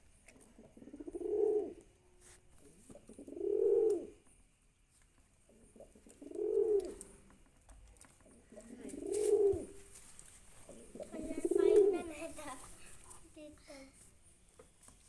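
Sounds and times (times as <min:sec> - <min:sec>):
pigeon cooing: 0:00.5 - 0:01.8, 0:03.0 - 0:04.2, 0:05.5 - 0:07.1, 0:08.5 - 0:09.8, 0:10.7 - 0:12.1.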